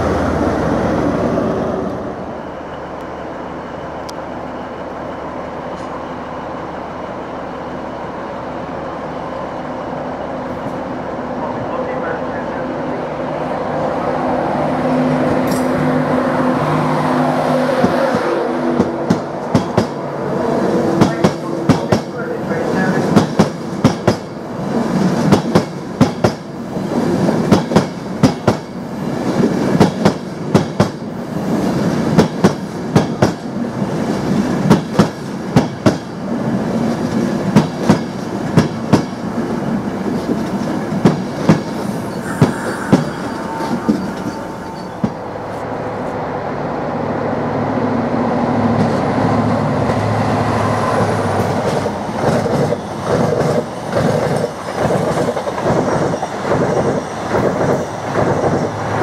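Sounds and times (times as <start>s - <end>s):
train rumble: 0.0s - 59.0s
train wheels clicking over joints: 17.8s - 20.1s, 20.8s - 45.2s, 51.3s - 59.0s.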